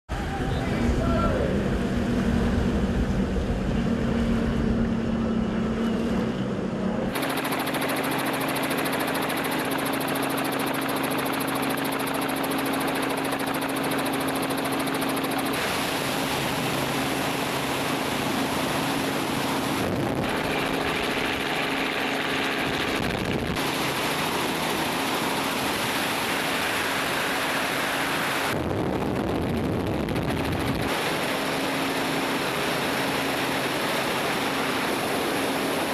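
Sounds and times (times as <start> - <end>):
jet ski engines droning: 0.1 - 22.3.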